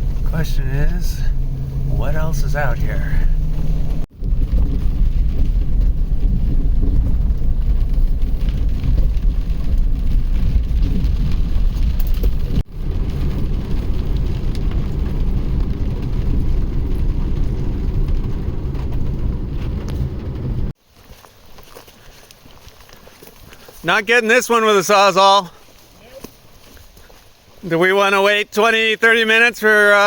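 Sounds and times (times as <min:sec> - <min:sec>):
vehicle engine and road rumble: 0:00.0 - 0:24.0.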